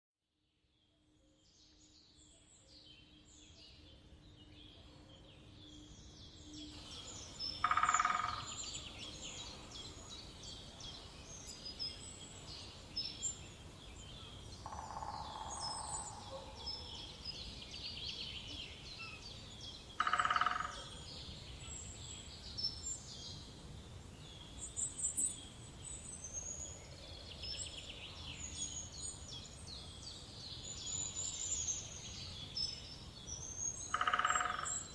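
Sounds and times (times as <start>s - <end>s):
woodpecker drumming: 7.6s - 8.5s, 14.6s - 15.9s, 20.0s - 20.9s, 33.9s - 34.9s.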